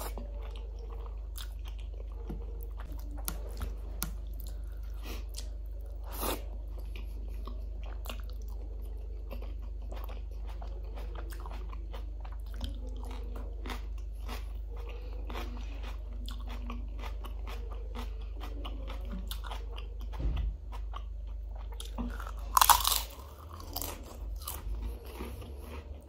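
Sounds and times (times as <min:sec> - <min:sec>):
chewing with wet mouth clicks: 0:00.0 - 0:26.0
food crunching: 0:00.0 - 0:26.0
low hum: 0:00.0 - 0:26.0.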